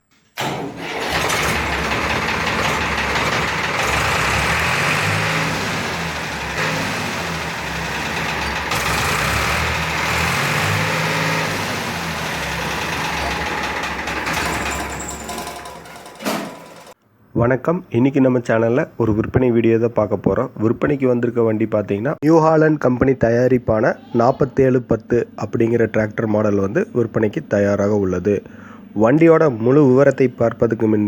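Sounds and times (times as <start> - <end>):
tractor diesel engine running: 0.8 - 17.0.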